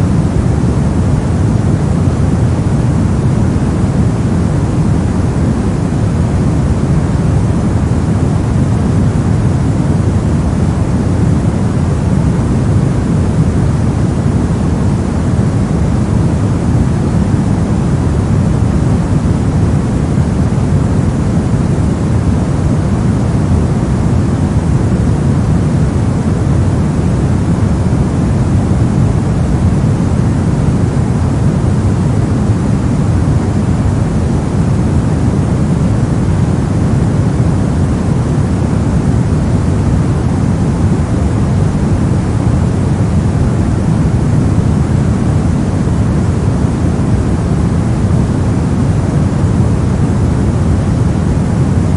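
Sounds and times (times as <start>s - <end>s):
brown noise rumble: 0.0s - 51.9s.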